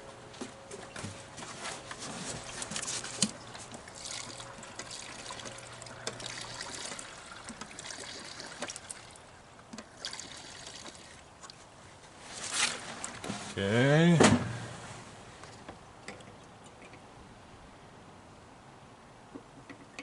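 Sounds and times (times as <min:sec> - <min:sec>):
fuel trickling into funnel: 0:02.2 - 0:13.4.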